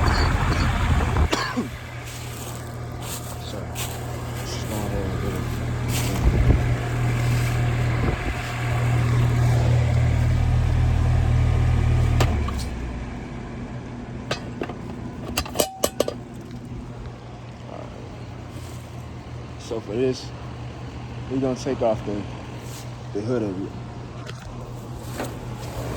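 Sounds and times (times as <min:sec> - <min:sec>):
air conditioning unit humming: 0:00.0 - 0:25.9
metal knocks: 0:14.3 - 0:16.5.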